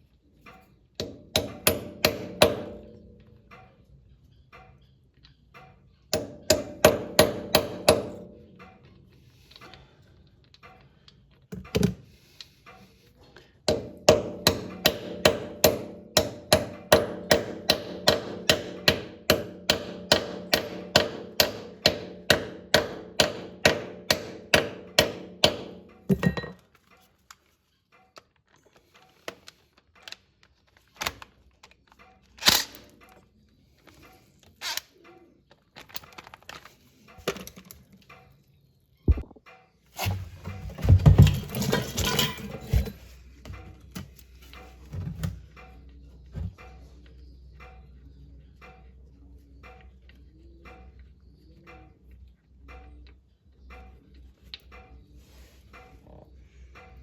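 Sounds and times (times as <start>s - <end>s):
metal knocks and clanks: 40.0s - 44.1s.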